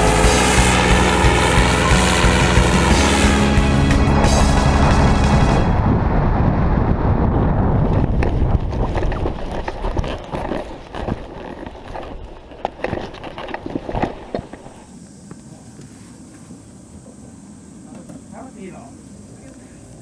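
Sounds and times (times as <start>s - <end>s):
loud rushing noise: 0.0s - 8.6s.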